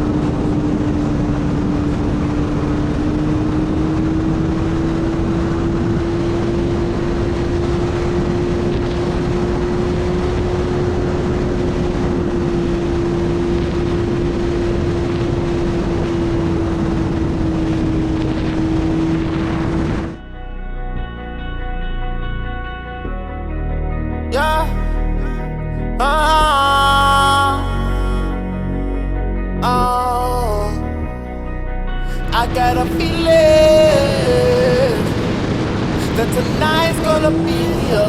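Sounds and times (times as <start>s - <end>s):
wind rush on microphone: 0.0s - 20.2s, 32.2s - 38.0s.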